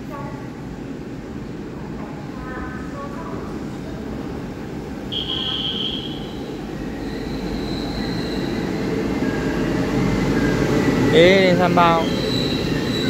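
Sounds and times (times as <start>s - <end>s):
train rumble approaching: 0.0s - 13.0s
high thin wheel squeal: 5.1s - 8.9s, 11.9s - 13.0s.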